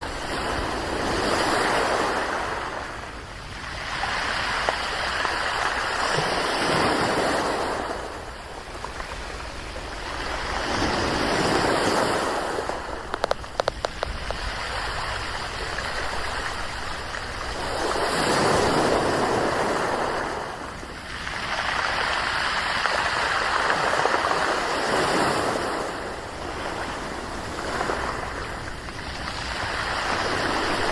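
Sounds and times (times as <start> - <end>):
waves washing over pebbles: 0.0 - 30.9
sharp clicks: 13.1 - 14.4.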